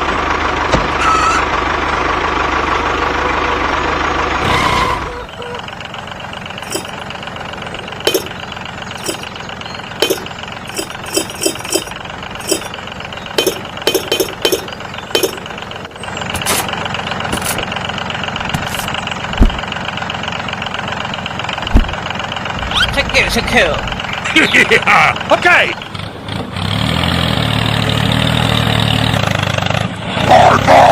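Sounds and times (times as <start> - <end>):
motor running: 6.6 - 7.0, 7.6 - 9.4, 10.0 - 12.7, 13.4 - 17.7
short sharp clinks: 9.0 - 9.3, 10.0 - 12.8
strong thump: 19.4 - 19.6, 21.7 - 22.0.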